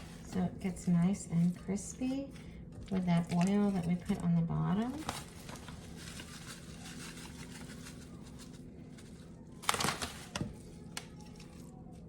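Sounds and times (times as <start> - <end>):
crinkly rustle: 0.0 - 12.0
steady low hum: 0.0 - 12.0.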